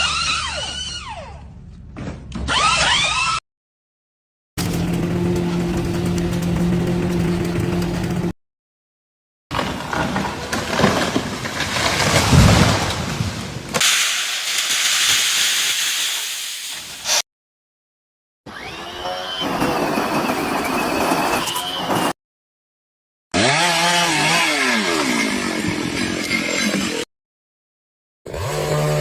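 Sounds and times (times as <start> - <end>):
rough rumbling clatter: 9.6 - 17.1
loud steady hiss: 13.8 - 17.2.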